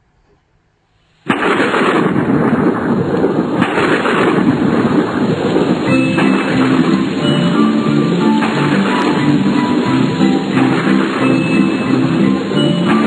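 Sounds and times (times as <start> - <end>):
heavy rain: 1.3 - 13.0
thunder: 1.3 - 13.0
guitar music: 5.8 - 13.0.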